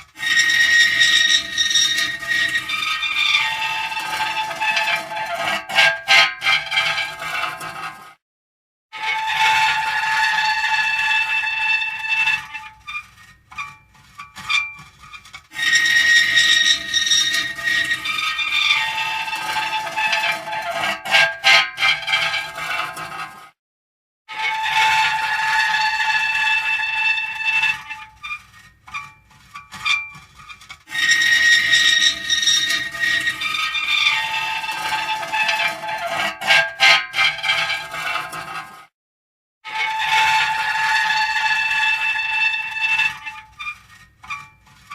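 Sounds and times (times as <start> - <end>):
short halting squeaks: 0.0 - 7.9, 12.4 - 23.2, 27.7 - 38.6, 42.1 - 44.9
metal creaking squeals: 0.0 - 8.2, 9.0 - 23.5, 24.3 - 38.9, 39.7 - 44.9.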